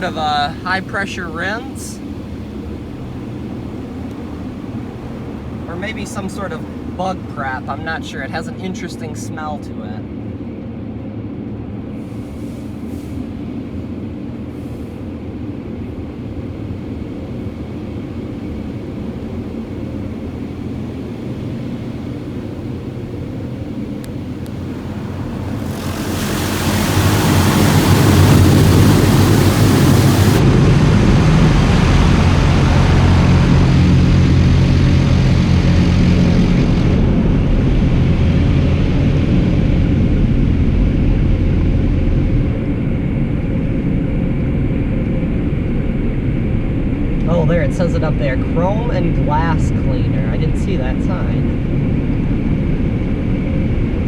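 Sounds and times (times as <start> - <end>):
car wash machine rumbling: 0.0 - 40.6
water spray hissing on car: 21.4 - 30.4.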